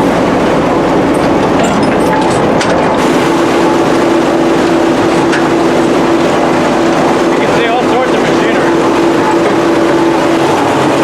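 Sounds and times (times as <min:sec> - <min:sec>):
heavy machinery drone: 0:00.0 - 0:11.0
steady hum: 0:00.0 - 0:11.0
machinery clanks: 0:01.0 - 0:11.0.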